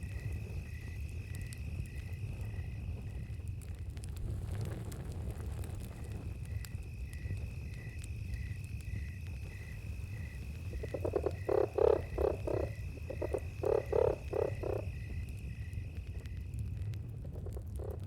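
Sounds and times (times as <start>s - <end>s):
low campfire rumble: 0.0s - 18.0s
cricket trill: 5.8s - 18.0s
frog croaking: 10.7s - 15.0s, 17.5s - 18.0s.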